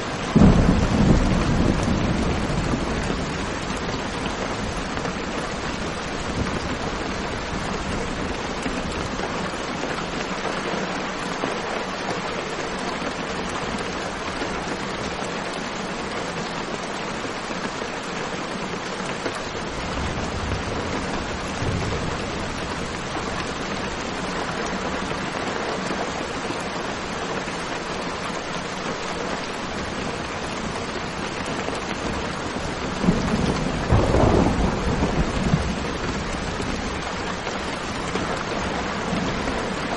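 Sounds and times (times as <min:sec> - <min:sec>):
heavy rain: 0:00.0 - 0:39.9
thunder rumbling: 0:00.2 - 0:09.3, 0:19.6 - 0:25.3, 0:29.8 - 0:39.9.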